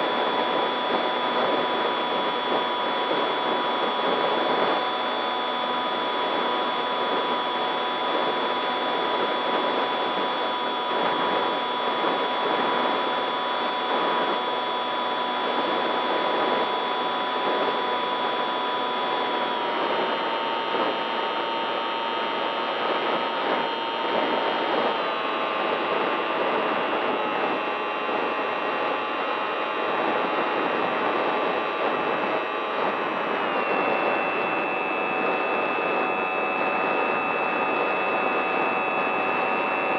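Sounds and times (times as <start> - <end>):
model plane motor whine: 30.0 - 39.9.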